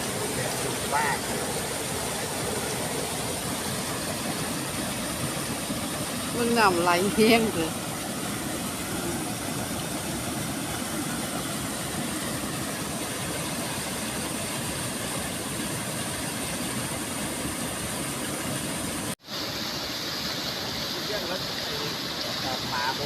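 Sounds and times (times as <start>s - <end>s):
fast-flowing water rushing: 0.0s - 23.0s.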